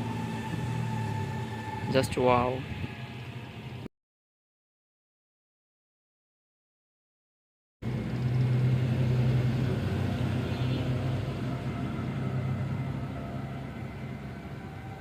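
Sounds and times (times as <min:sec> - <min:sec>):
heavy vehicle engine rumble: 0:07.8 - 0:15.0.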